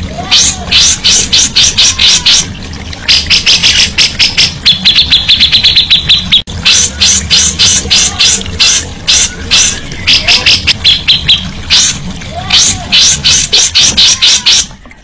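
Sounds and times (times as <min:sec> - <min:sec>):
songbird singing: 0:03.1 - 0:12.0.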